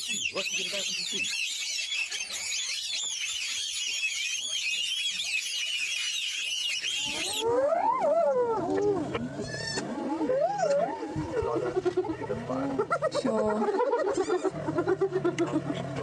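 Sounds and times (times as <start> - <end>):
small birds chirping: 0.0 - 7.5
animal wavering cries: 0.0 - 13.1, 13.8 - 15.3.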